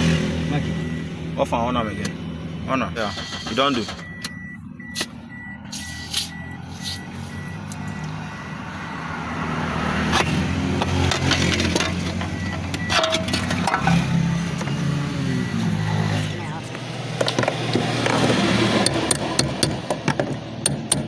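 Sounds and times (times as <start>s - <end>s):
car warning chime beeping: 3.1s - 9.0s, 12.0s - 16.7s.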